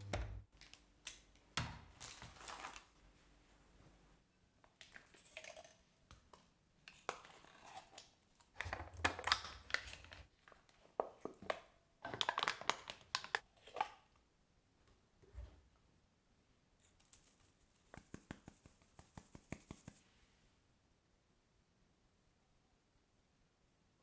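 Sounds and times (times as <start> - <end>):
crinkling rustles: 1.9 - 3.3.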